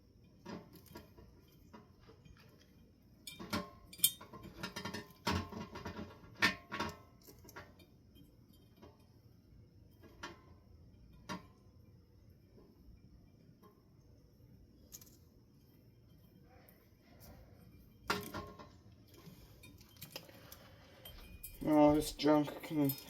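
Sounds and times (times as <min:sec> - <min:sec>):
clicks and clinks of fan parts: 0:00.2 - 0:09.2, 0:14.8 - 0:15.3, 0:16.1 - 0:23.0.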